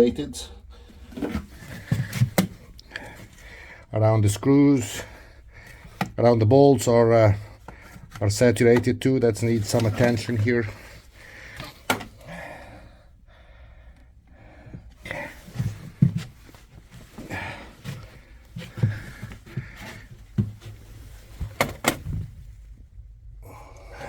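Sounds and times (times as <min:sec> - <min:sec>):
dull knocks and thumps: 0:01.0 - 0:02.7, 0:15.4 - 0:22.6
rustling: 0:14.9 - 0:22.9.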